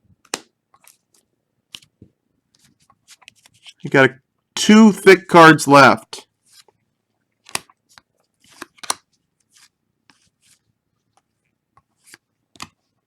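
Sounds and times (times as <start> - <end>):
trading cards crinkling and clicking: 0.2 - 2.0, 2.6 - 3.9, 7.4 - 13.0.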